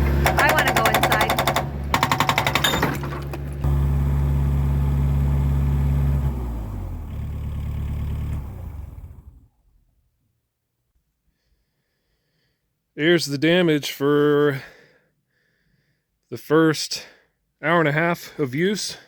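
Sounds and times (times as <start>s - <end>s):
excavator engine running: 0.0s - 9.6s.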